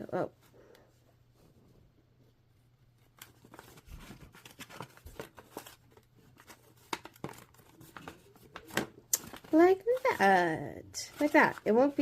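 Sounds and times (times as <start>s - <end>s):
paper rustling and crinkling: 2.9s - 12.0s.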